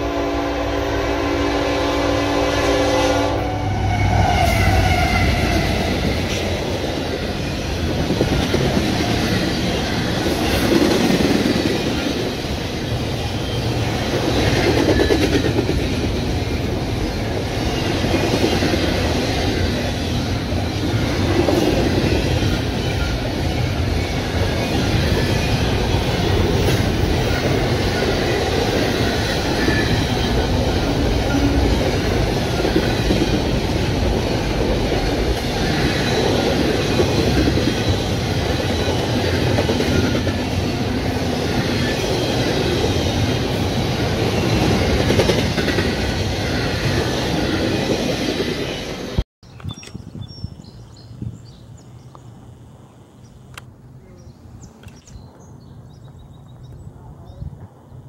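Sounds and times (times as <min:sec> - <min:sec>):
steel wheels on rails: 0:03.7 - 0:49.2.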